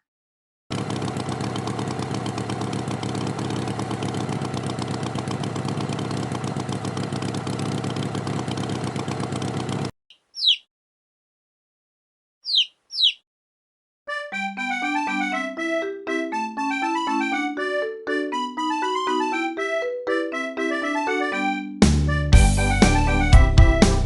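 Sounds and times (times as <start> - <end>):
cartoon tractor engine chugging: 0.7 - 9.9, 14.3 - 21.5, 22.1 - 24.0
short high chirp: 10.4 - 10.7, 12.5 - 13.2.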